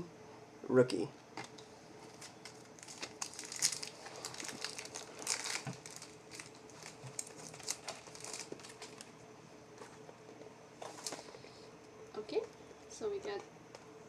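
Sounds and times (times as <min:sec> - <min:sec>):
faint steady hum: 0:00.0 - 0:14.0
trading cards and wrapper crinkling: 0:02.1 - 0:09.1.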